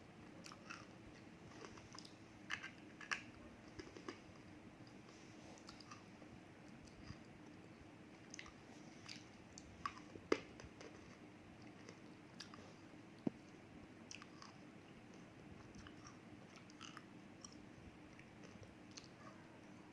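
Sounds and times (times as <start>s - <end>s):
faint steady hum: 0.0s - 19.9s
crisp chewing crunches: 0.4s - 4.5s, 13.4s - 17.6s.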